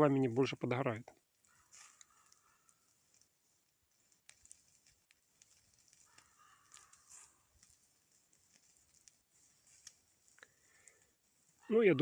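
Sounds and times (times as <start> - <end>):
faint coals crackling: 0.0 - 12.0
distant animal call: 6.0 - 7.5.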